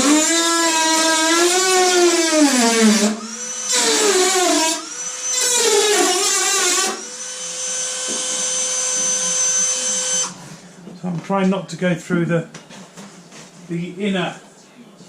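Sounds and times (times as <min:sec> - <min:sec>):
rotary tool cutting metal: 0:00.0 - 0:10.3.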